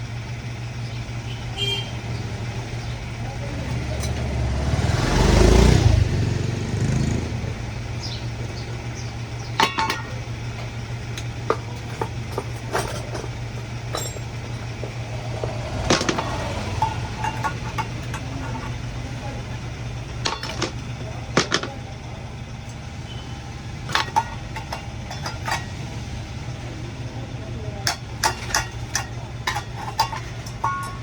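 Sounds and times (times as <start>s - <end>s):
vehicle passing: 3.5s - 7.7s, 14.5s - 21.8s.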